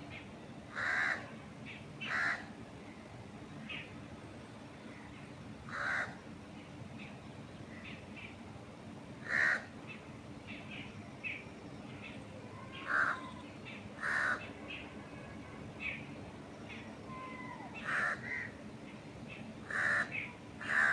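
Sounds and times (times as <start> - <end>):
wind in trees: 0.0 - 20.9.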